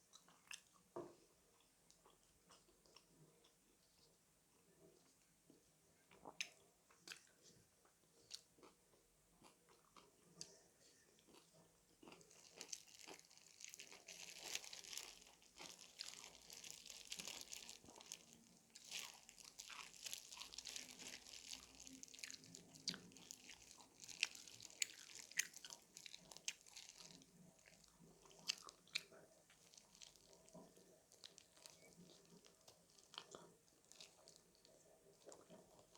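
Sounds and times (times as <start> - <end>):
crunchy chewing of fried chicken: 6.1 - 35.9
crisp coating crackling: 12.2 - 28.7.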